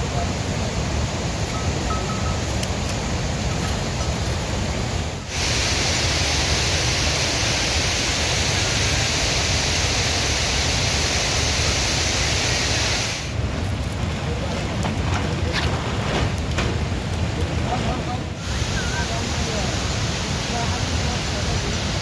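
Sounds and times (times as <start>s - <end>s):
water hissing: 0.0s - 13.5s, 18.2s - 22.0s.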